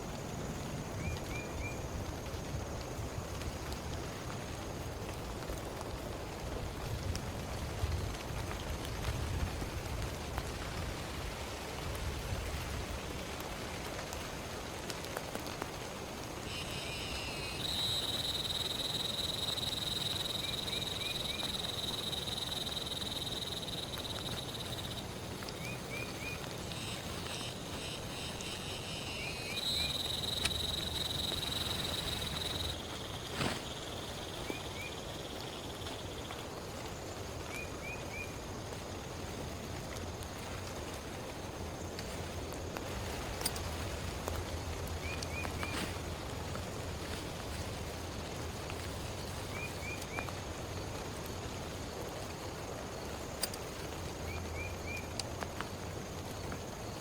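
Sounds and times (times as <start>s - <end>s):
rain on forest and tent: 0.0s - 57.0s.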